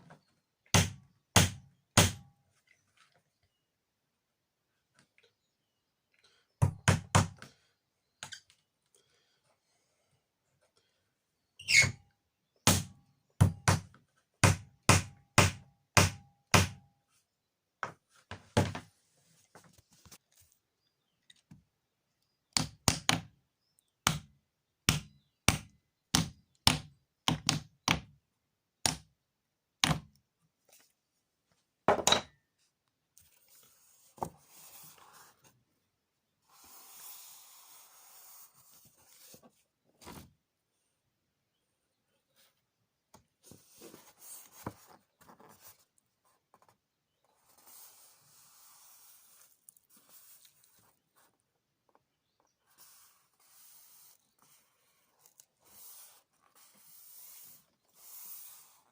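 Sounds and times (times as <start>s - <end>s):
faint rustling and scraping: 18.0s - 20.7s, 32.5s - 40.4s, 43.4s - 58.9s.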